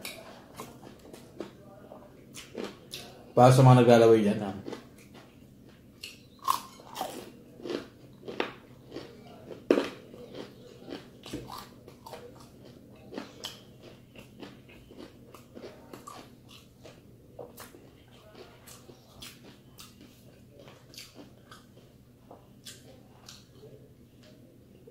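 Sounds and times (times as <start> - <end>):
crunching fried chicken skin: 6.0 - 21.9.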